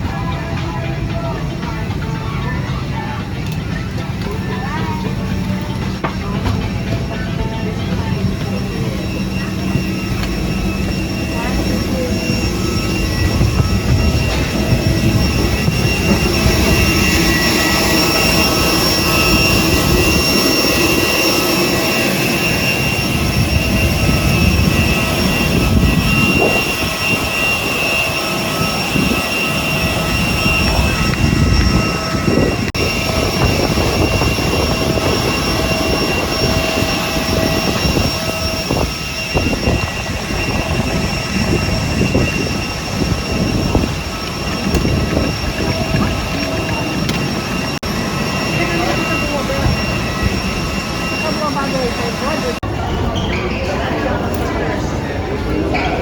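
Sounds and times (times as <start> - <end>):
jet airliner engine roar: 0.0 - 56.0.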